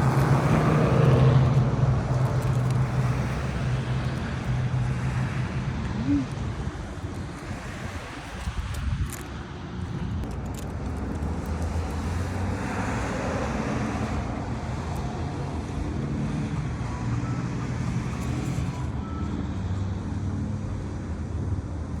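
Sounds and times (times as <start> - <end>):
vehicle road noise rumble: 0.0 - 22.0.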